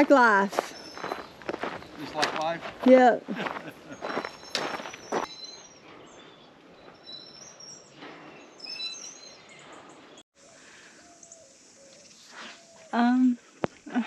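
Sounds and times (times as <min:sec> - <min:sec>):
wild birds chirping: 0:00.0 - 0:13.8
faint steady hiss: 0:10.4 - 0:14.0.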